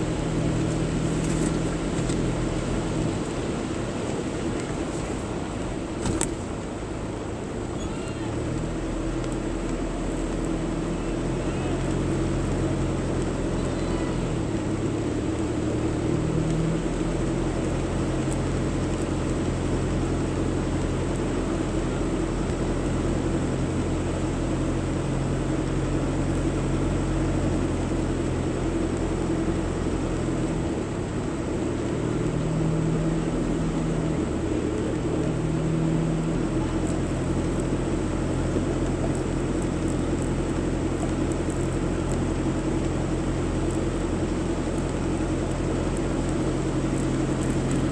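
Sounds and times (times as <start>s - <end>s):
car engine and road noise: 0.0s - 47.9s.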